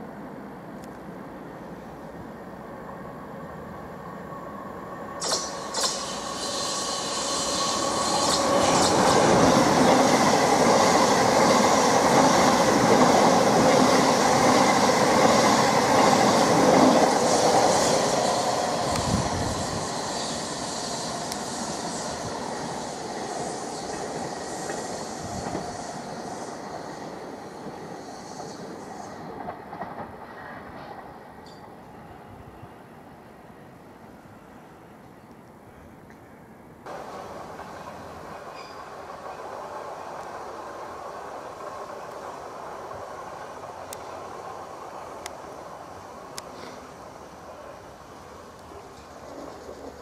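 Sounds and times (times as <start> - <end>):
train wheels rumbling on rail: 5.1 - 31.9, 36.9 - 50.0
wheel squeal and clacking: 38.5 - 38.9.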